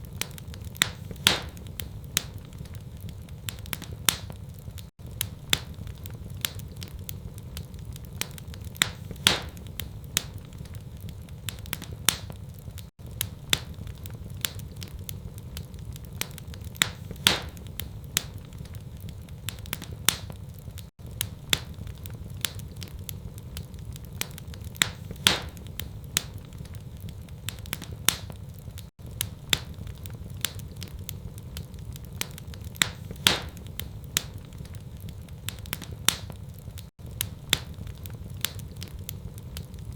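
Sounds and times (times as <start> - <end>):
fire popping: 0.0 - 39.9
wood fire crackling: 0.0 - 39.9.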